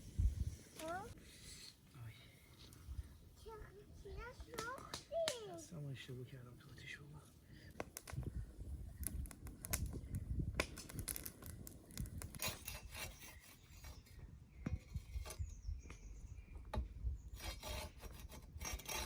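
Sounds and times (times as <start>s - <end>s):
rubbing and scraping: 10.7s - 14.2s, 17.3s - 19.0s.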